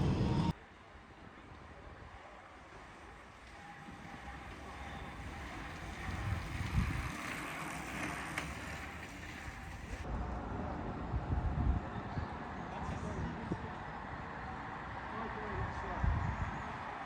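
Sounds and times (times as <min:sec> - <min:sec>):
wind rumble on microphone: 0:00.0 - 0:02.5, 0:03.1 - 0:17.0
heavy rain on wet street: 0:02.2 - 0:10.0.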